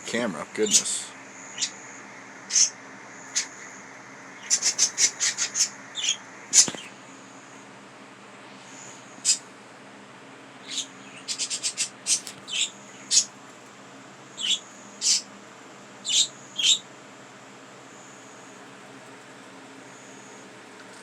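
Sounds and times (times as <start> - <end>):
budgerigar chirping: 1.4 - 3.8, 4.4 - 6.8, 10.6 - 13.3, 14.3 - 15.3, 16.0 - 16.8.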